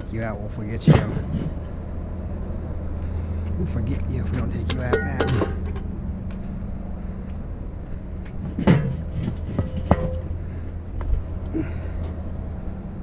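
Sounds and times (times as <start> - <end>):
metal parts clunking: 0.0 - 1.8, 4.6 - 5.9, 8.5 - 10.3
low steady hum: 0.0 - 13.0.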